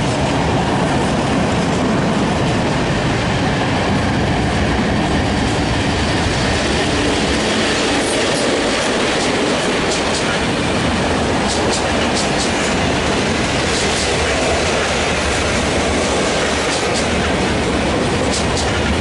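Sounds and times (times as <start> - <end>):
train wheels clattering over rail joints: 5.3 - 19.0.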